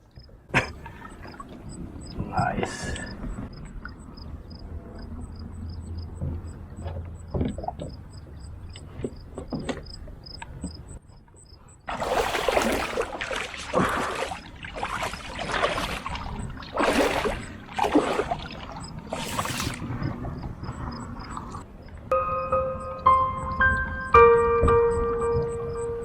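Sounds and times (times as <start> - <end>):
insects chirping: 0.0 - 26.0
paddle splashing in water: 0.5 - 4.0, 11.9 - 20.5.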